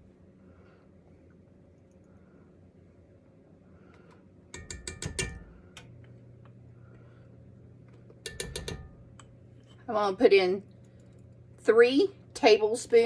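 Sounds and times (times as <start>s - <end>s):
faint steady hum: 0.0s - 13.0s
kitchen utensils clinking: 8.2s - 9.2s.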